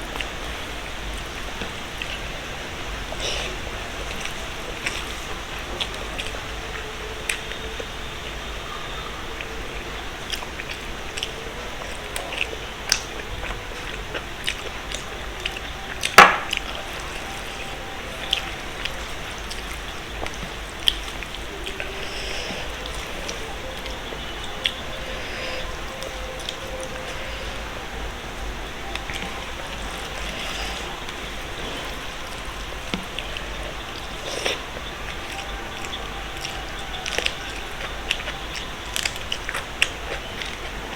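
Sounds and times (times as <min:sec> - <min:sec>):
steady rushing hiss: 0:00.0 - 0:40.9
person chewing food: 0:10.2 - 0:40.8
person eating: 0:28.4 - 0:33.4, 0:34.0 - 0:40.6.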